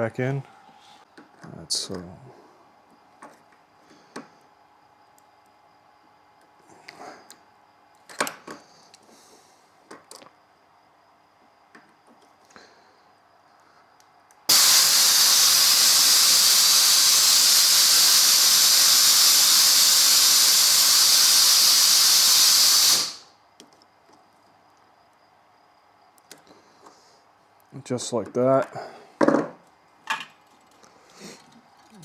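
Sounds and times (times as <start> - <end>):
loud steady hiss: 14.5 - 23.4.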